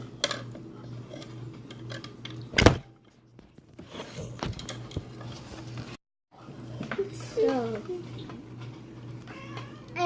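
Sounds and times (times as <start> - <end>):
loud thump: 2.6 - 2.9.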